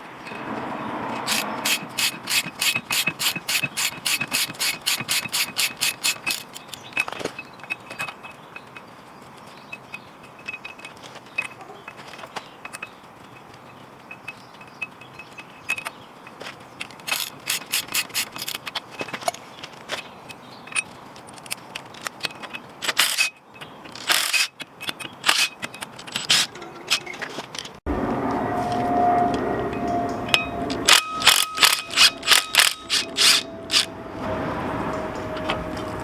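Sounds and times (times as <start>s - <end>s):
metal tools clicking and clanking: 1.2s - 16.0s, 16.8s - 19.4s, 20.0s - 27.8s, 30.3s - 33.9s.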